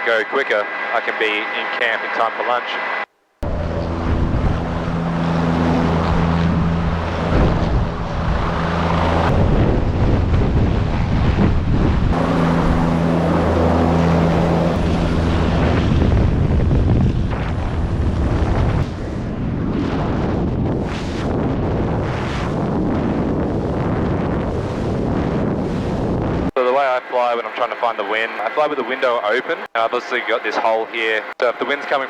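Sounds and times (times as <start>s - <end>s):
helicopter engine and rotor hum: 0.0s - 19.6s, 26.7s - 32.0s
wind noise on microphone: 3.4s - 26.5s.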